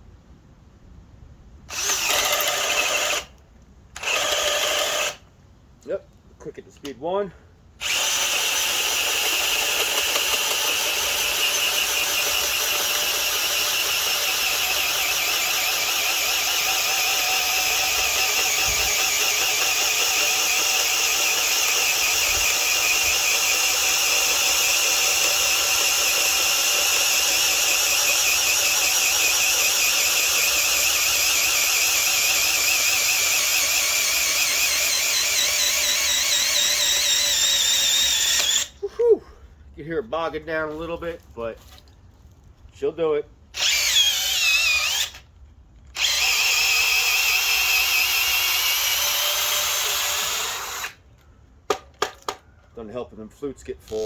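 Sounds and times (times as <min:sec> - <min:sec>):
drill whining through wood: 0:01.7 - 0:03.3, 0:04.0 - 0:05.2, 0:07.8 - 0:38.8, 0:43.5 - 0:45.3, 0:45.9 - 0:51.0.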